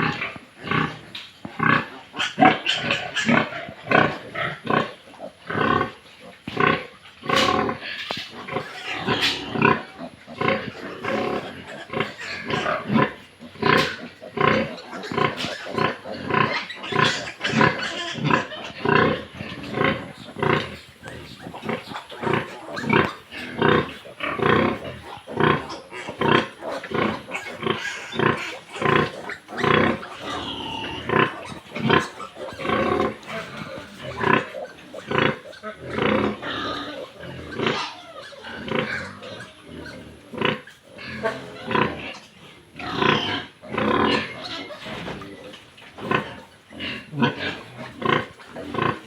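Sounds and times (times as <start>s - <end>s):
pigs making short calls: 0.0s - 49.0s.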